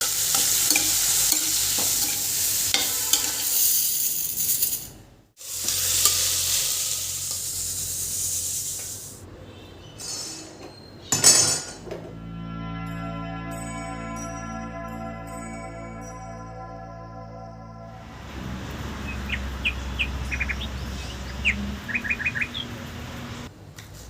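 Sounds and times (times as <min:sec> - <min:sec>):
food sizzling in a frying pan: 0:00.0 - 0:09.2.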